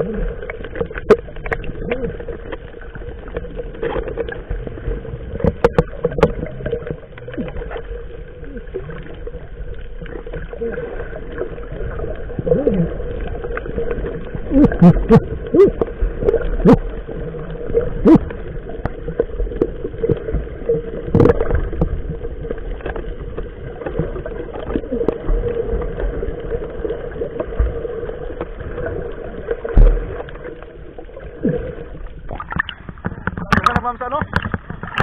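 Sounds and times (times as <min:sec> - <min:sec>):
short knocks and clicks: 0:32.5 - 0:35.0.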